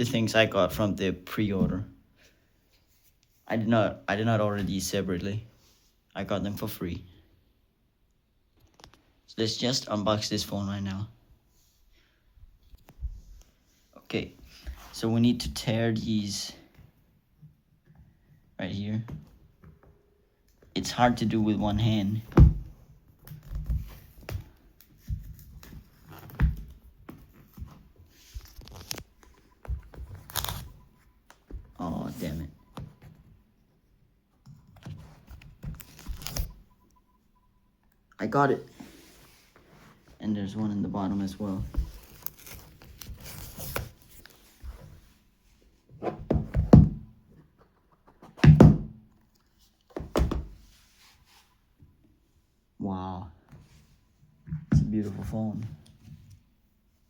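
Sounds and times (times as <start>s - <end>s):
cardboard box knocks and thumps: 46.1s - 47.1s.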